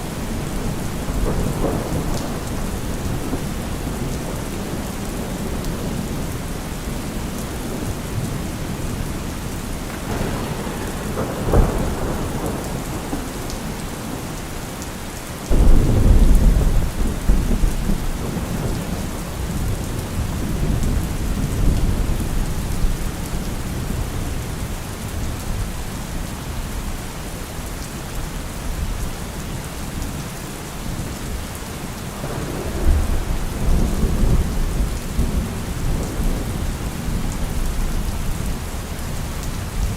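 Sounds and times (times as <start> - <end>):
low thunder rumble: 0.0 - 14.5, 15.5 - 26.3, 32.0 - 39.9
steady rain falling: 0.0 - 39.9
thunder crack: 9.5 - 14.3, 15.5 - 22.3, 32.2 - 37.6.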